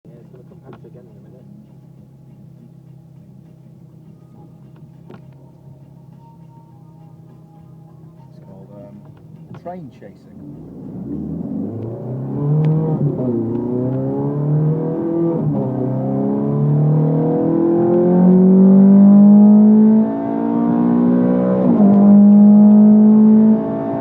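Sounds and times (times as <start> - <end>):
car engine accelerating hard: 10.3 - 24.0.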